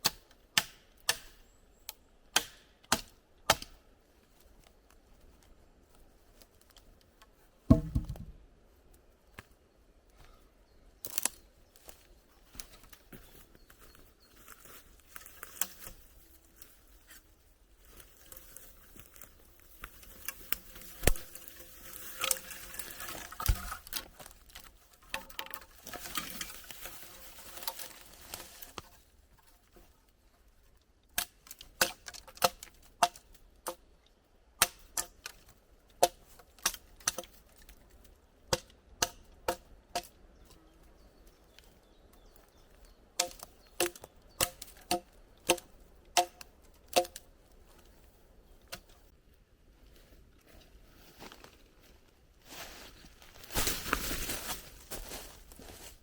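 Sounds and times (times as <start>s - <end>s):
sharp knocks: 7.7s - 8.4s
rustling and crunching: 11.0s - 34.0s, 49.8s - 56.0s.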